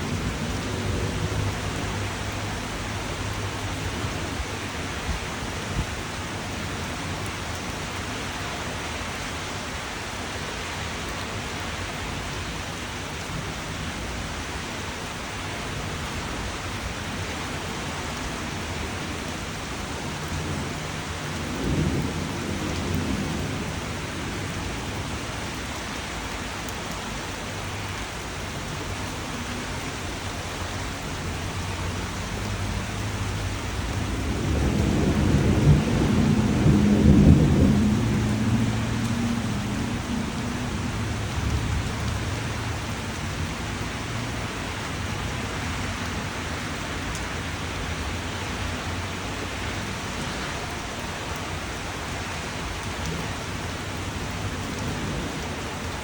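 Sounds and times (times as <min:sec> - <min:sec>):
steady rainfall: 0:00.0 - 0:56.0
rolling thunder: 0:20.2 - 0:25.2, 0:31.1 - 0:43.0.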